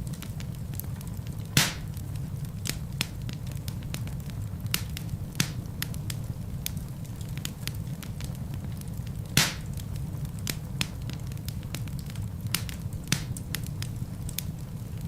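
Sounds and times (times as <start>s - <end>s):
fire crackles and snaps: 0.0s - 15.0s
low rumble of flames: 0.0s - 15.0s
loud fire pop: 1.6s - 2.0s, 9.4s - 9.8s.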